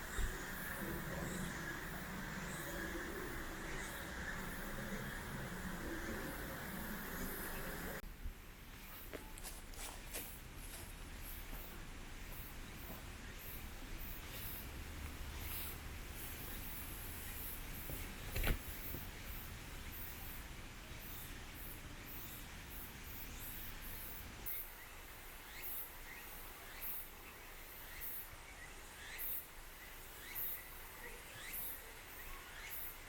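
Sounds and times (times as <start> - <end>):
birds chirping: 0.0 - 8.0.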